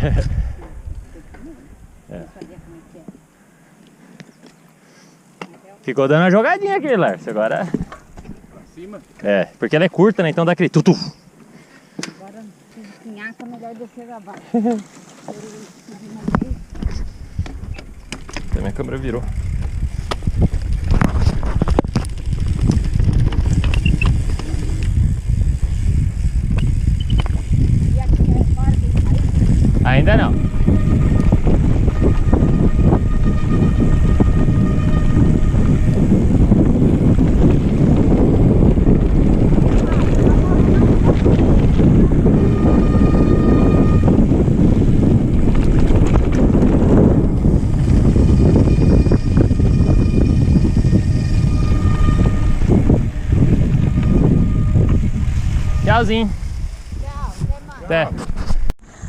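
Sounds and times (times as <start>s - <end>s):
wind on microphone: 0.0s - 2.8s, 16.1s - 59.0s
bike rumbling on dirt trail: 0.0s - 3.0s, 13.2s - 59.0s
bike knocks and rattles: 16.2s - 29.8s, 44.6s - 51.1s.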